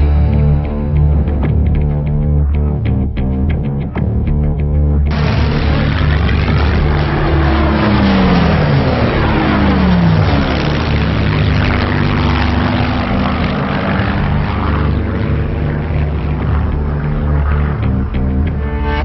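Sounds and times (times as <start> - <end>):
propeller plane flying past: 5.1 - 19.0.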